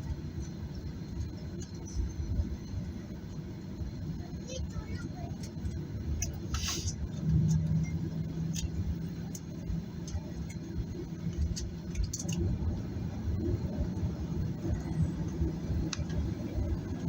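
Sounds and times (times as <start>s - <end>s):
aircraft cabin low rumble: 0.0s - 17.0s
steady hum: 0.0s - 17.0s
short hiss: 6.5s - 7.0s
small clicks and rattles: 8.4s - 12.5s.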